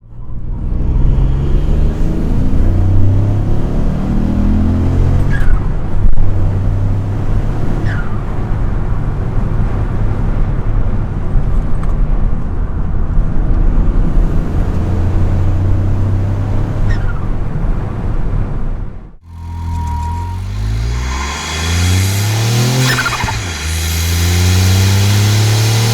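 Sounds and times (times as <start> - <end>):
car engine accelerating: 0.4 - 8.6, 13.9 - 17.1, 19.2 - 25.9
short high falling squeaks: 19.3 - 25.9.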